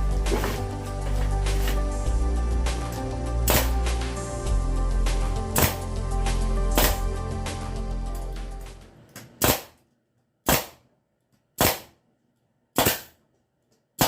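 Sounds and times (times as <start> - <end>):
background music: 0.0 - 9.1.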